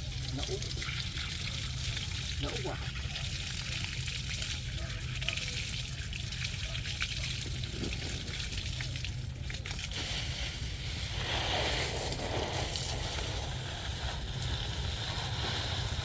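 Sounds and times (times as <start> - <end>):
water running and splashing: 0.0 - 16.0
steady low rumble: 7.3 - 16.0.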